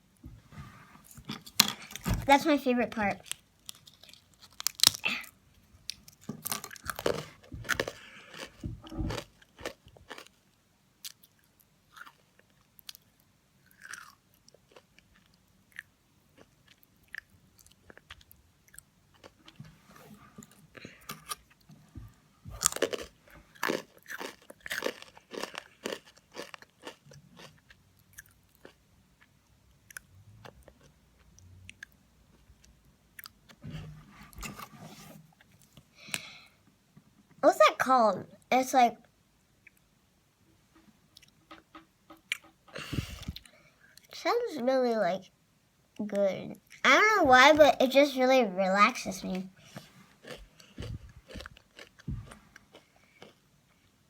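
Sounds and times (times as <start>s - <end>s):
cookie crunching and chewing: 3.0s - 10.4s, 11.0s - 19.6s, 20.4s - 21.7s, 22.6s - 33.6s, 49.6s - 53.9s.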